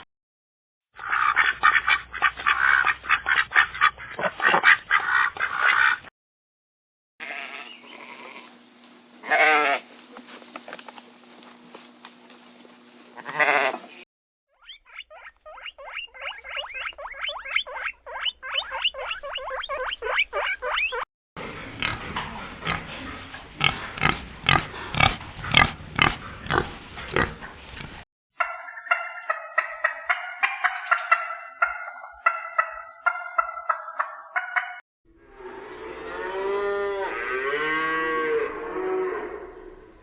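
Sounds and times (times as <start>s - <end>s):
farm animals calling: 1.0s - 6.0s, 7.2s - 8.5s, 9.2s - 10.8s, 13.2s - 14.0s, 14.6s - 34.8s.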